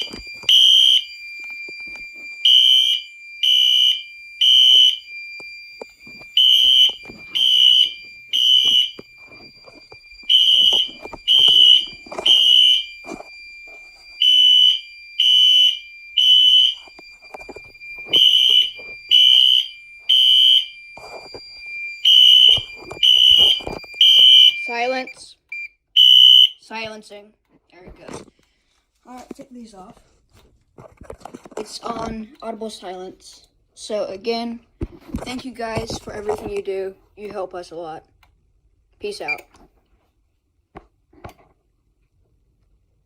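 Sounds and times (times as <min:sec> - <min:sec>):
steady high tone: 0:00.0 - 0:25.2
fire alarm shrill beeps: 0:00.0 - 0:26.8.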